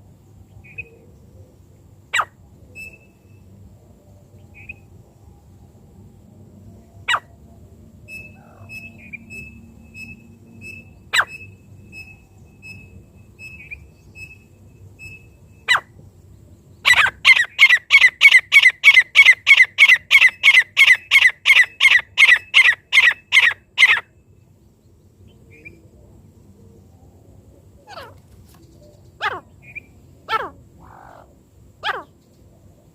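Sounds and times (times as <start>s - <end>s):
francolin calling: 2.1s - 3.5s, 8.1s - 16.0s, 16.8s - 24.3s, 27.6s - 32.3s
faint high peeping: 8.0s - 26.0s.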